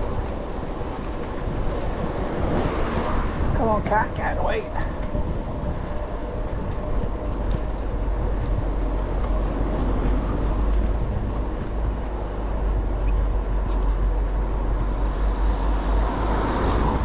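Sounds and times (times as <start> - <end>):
road and tyre noise: 0.0 - 17.0
wind rumble on microphone: 0.0 - 17.0.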